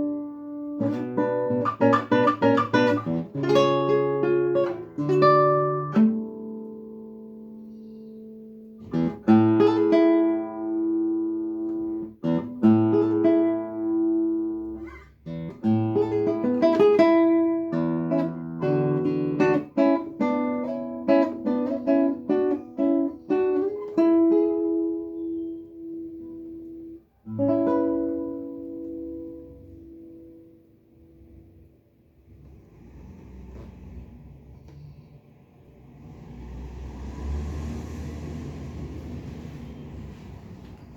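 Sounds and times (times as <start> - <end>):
solo plucked guitar: 0.0 - 31.8.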